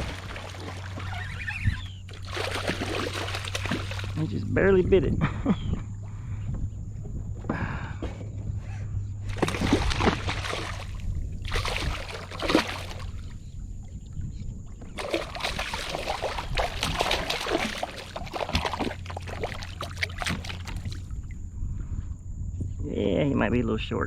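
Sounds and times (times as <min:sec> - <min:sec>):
water splashing and sloshing: 0:00.0 - 0:04.6, 0:09.1 - 0:21.4.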